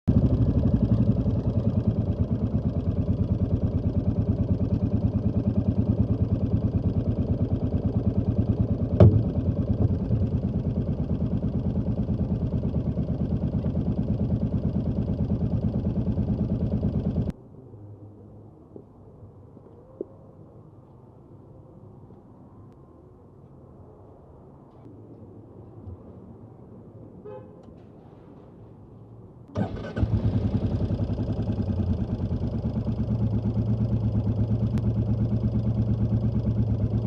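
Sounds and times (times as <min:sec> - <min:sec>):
motorcycle engine idling: 0:00.0 - 0:17.3, 0:29.6 - 0:37.0.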